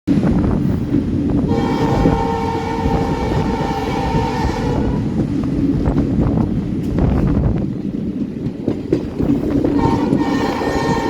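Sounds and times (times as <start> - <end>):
train wheels rumbling on track: 0.1 - 11.0
train horn blast: 1.5 - 5.3, 9.8 - 11.0.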